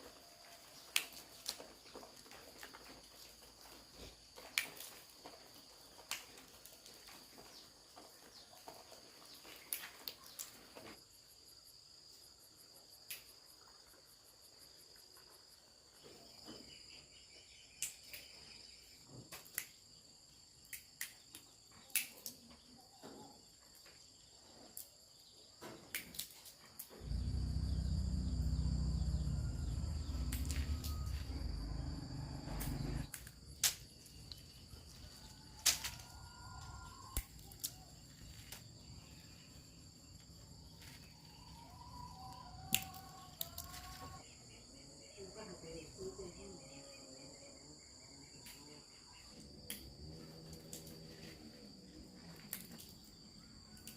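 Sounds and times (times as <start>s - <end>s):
insects chirring: 0.0s - 53.9s
loud low rumble: 27.0s - 33.1s.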